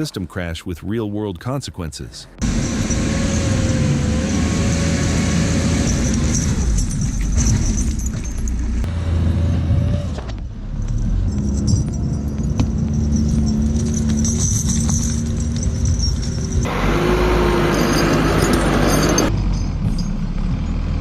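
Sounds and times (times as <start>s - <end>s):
engine rumbling under load: 2.2s - 21.0s
metallic rattling: 2.4s - 8.9s, 10.9s - 20.2s.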